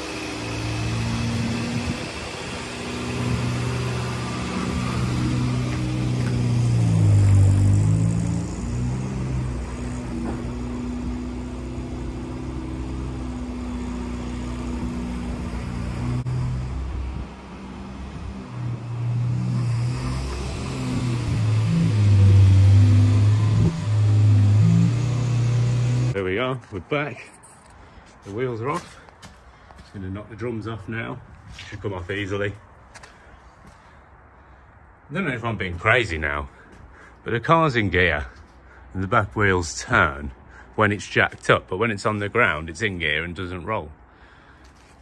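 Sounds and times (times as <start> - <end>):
car engine running: 0.0 - 26.2.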